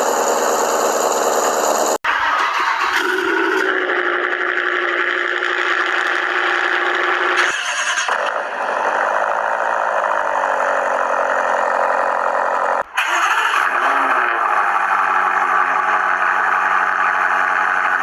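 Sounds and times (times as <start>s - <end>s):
car engine starting and idling: 0.0s - 18.0s
car engine running steadily: 14.4s - 18.0s.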